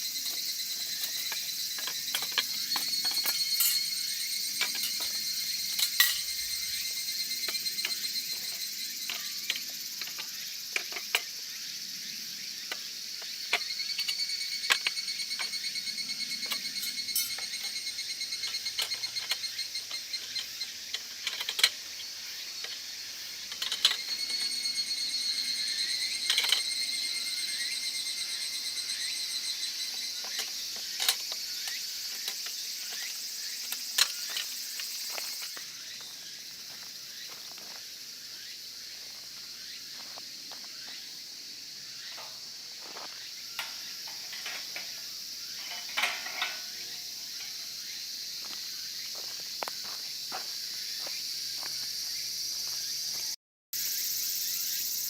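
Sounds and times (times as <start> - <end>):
insects chirring: 0.0 - 55.0
scattered clicks and knocks: 0.2 - 11.3, 16.4 - 22.9, 23.5 - 24.6, 43.6 - 47.7.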